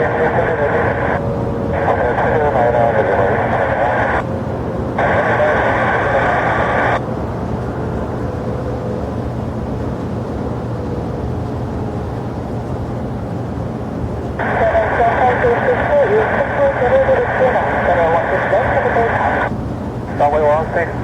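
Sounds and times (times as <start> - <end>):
air traffic control radio: 0.0 - 7.0, 14.4 - 21.0
jet engines rumbling: 0.0 - 21.0.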